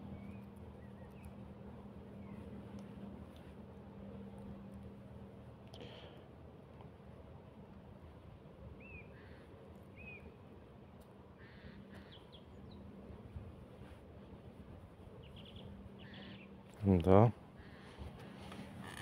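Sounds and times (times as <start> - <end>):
faint birds calling: 0.0 - 3.5, 8.8 - 10.5, 11.3 - 13.5, 15.0 - 19.0
low steady hum: 0.0 - 19.0.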